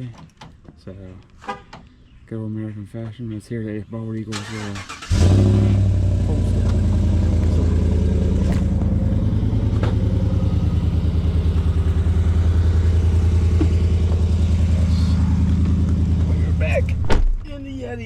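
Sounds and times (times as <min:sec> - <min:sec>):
pickup engine idling: 0:04.5 - 0:18.0.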